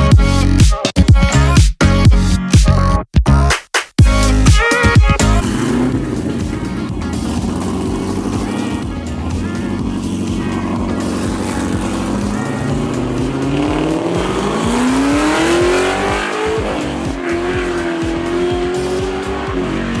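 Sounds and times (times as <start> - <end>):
car engine accelerating: 5.1 - 20.0.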